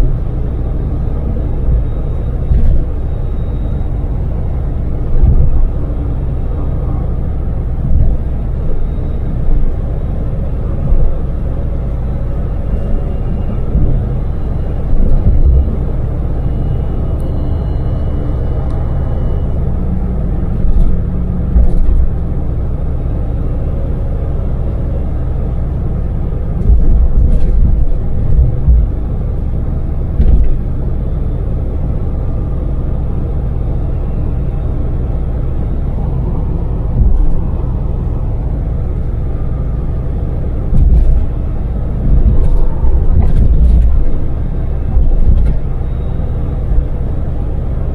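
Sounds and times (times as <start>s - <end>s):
van engine and road drone: 0.0s - 47.9s
low thuds: 5.0s - 5.9s, 7.7s - 8.8s, 13.6s - 16.0s, 26.5s - 29.2s, 30.1s - 30.7s, 36.0s - 45.9s.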